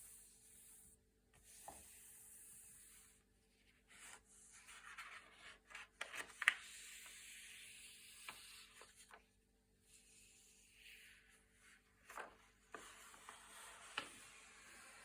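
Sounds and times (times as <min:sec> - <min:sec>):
paper pages turning: 0:04.0 - 0:09.2, 0:12.0 - 0:15.0.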